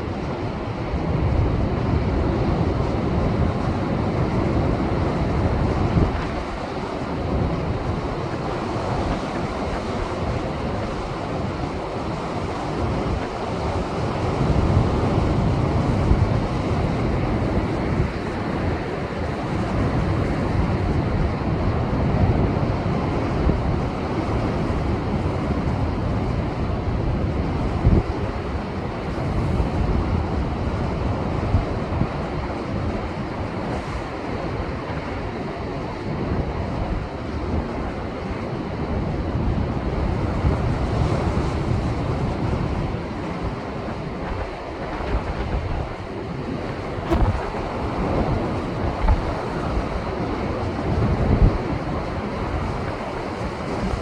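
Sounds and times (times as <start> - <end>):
wind buffeting microphone: 0.0 - 54.0
surf breaking on rocky shore: 39.9 - 54.0.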